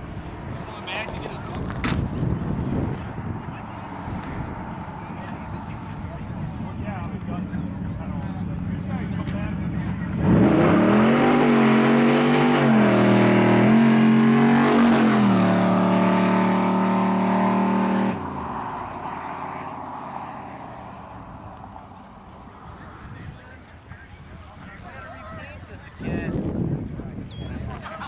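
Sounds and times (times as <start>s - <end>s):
car engine revving high: 9.5s - 21.8s.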